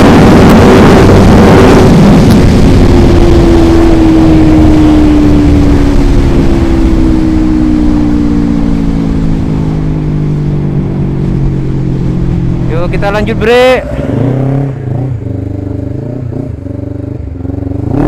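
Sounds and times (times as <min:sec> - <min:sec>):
motorcycle engine decelerating: 0:00.0 - 0:18.0
road and wind rumble: 0:00.0 - 0:18.0.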